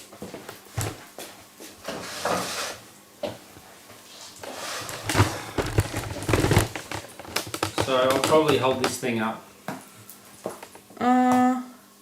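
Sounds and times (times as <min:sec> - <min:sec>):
dishes knocking and rustling: 0:04.4 - 0:09.1.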